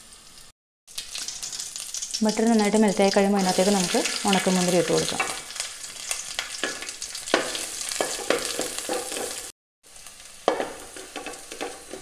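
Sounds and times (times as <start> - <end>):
raisins sizzling in butter: 0.0 - 12.0
spoon scraping a pan: 6.1 - 9.5, 10.5 - 12.0.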